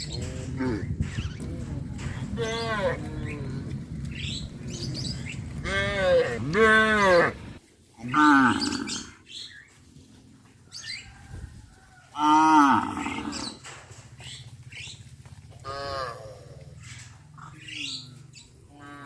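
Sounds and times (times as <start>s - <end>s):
cattle mooing: 5.6s - 9.2s, 12.2s - 13.6s, 15.6s - 16.8s.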